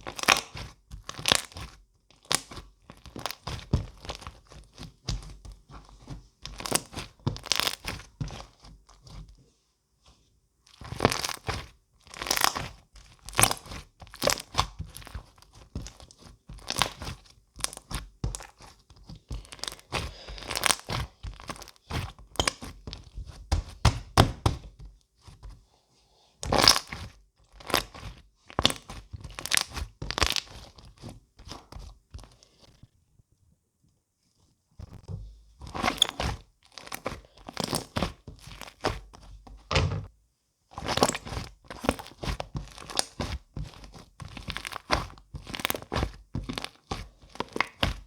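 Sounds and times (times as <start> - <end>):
crunching and crinkling: 35.7 - 39.1, 40.8 - 48.0.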